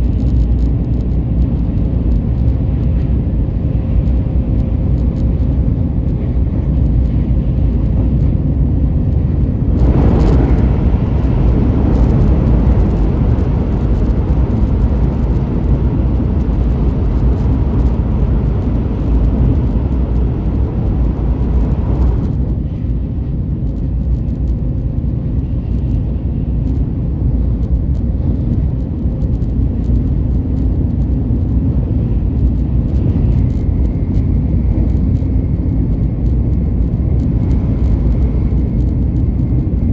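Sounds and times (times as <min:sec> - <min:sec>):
moving train rumbling: 0:00.0 - 0:39.9
loud rushing noise: 0:09.3 - 0:22.4.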